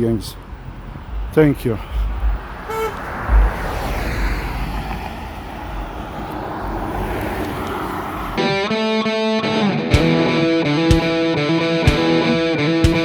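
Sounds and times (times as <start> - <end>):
engine rumble: 0.0 - 8.6
wind knocking on microphone: 0.4 - 8.4
distorted electric guitar music: 8.4 - 13.0.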